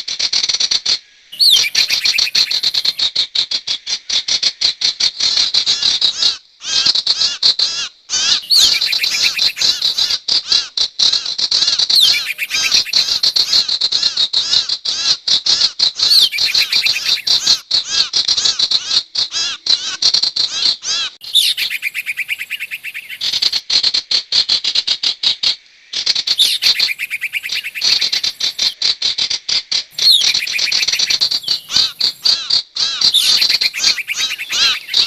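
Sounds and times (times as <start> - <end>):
fast high-pitched bird chirping: 1.4 - 3.0, 8.4 - 10.2, 11.9 - 13.6, 16.0 - 17.6, 21.2 - 23.6, 26.2 - 28.8, 29.9 - 35.0.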